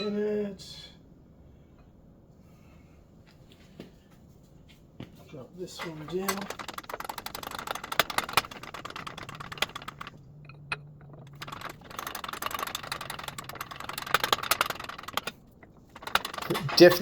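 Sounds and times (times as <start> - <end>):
metallic clicking and rattling press: 5.8 - 17.0.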